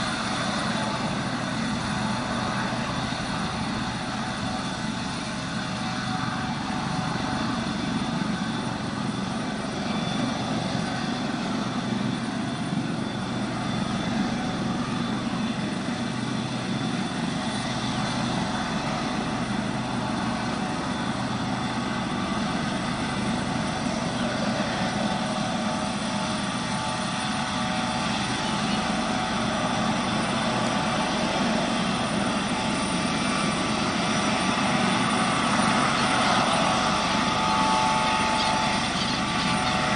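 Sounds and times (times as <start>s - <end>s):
helicopter turbine whine: 0.0s - 39.9s
low rotor rumble: 0.0s - 39.9s.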